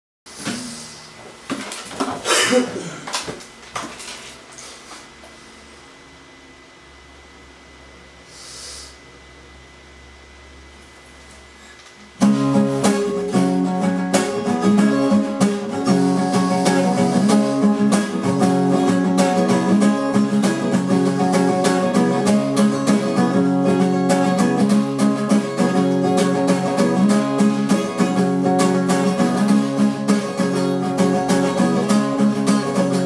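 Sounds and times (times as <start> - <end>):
acoustic guitar music: 12.2 - 33.0.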